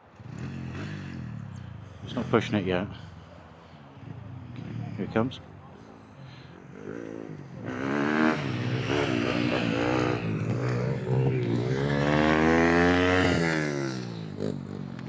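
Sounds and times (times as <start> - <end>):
motocross bike engine revving: 6.7 - 15.0.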